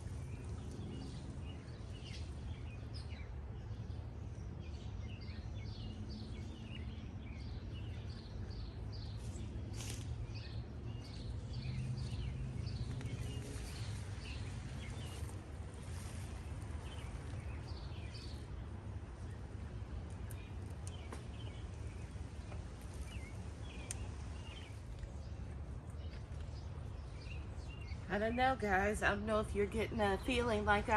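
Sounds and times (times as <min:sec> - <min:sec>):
low outdoor rumble: 0:00.0 - 0:30.9
songbirds chirping: 0:00.0 - 0:30.9
faint sharp clicks: 0:20.2 - 0:21.3, 0:23.8 - 0:24.1.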